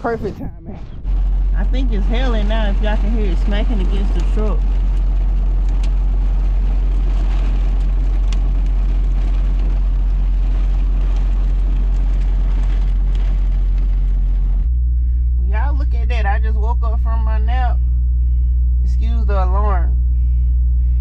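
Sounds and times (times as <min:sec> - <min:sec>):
low engine hum: 0:00.0 - 0:21.0
heavy rain on truck cab: 0:01.0 - 0:14.7.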